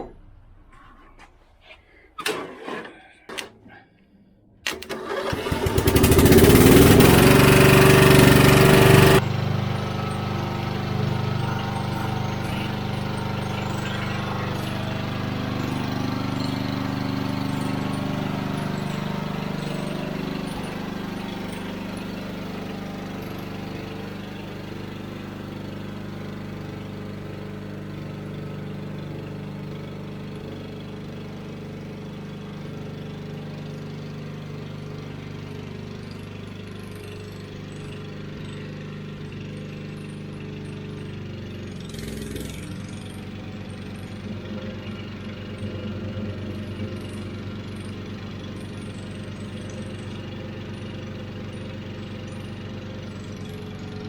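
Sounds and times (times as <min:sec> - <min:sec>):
starter clicks: 0:04.6 - 0:06.3
lawn tractor engine running: 0:04.6 - 0:54.0.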